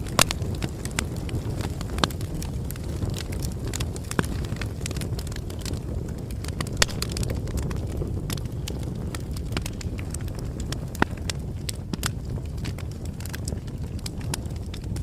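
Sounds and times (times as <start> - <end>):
low rumble of flames: 0.0 - 15.0
wood crackling and popping: 0.0 - 15.0.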